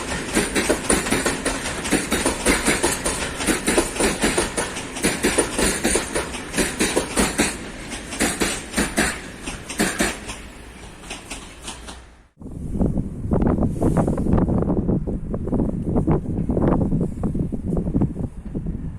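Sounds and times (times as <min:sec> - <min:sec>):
train wheels clattering over rails: 0:00.0 - 0:12.4.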